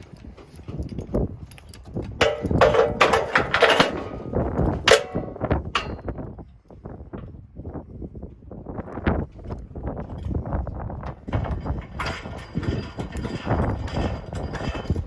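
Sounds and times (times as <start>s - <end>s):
ringing metallic clangs: 2.2s - 6.2s, 11.5s - 15.0s.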